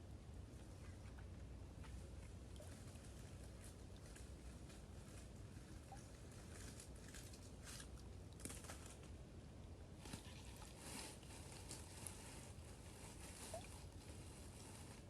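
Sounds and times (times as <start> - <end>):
dry leaves rustling: 10.8 - 15.0.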